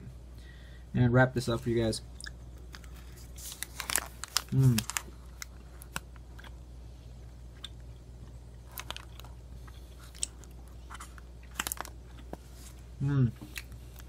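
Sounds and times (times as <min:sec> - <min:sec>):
low steady hum: 0:00.0 - 0:14.0
person chewing: 0:02.2 - 0:12.4
faint crunches and clicks: 0:08.6 - 0:12.4.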